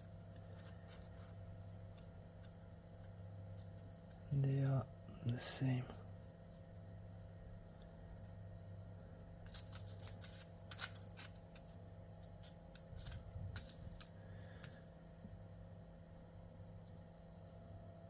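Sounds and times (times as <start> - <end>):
faint steady hum: 0.0 - 18.0
small metal pins clinking: 9.4 - 11.6, 12.7 - 14.8.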